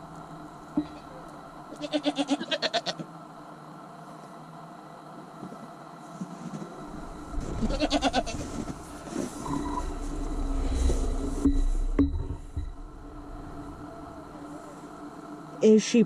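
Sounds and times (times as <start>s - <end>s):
low rumbling noise: 0.0s - 1.7s, 6.7s - 16.0s
goat bleating: 1.7s - 3.0s, 7.6s - 8.4s.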